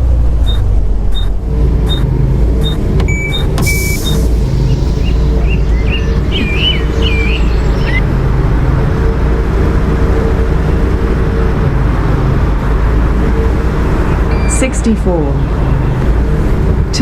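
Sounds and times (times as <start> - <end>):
bus diesel engine whining: 0.0 - 17.0
high chirping: 3.1 - 8.1.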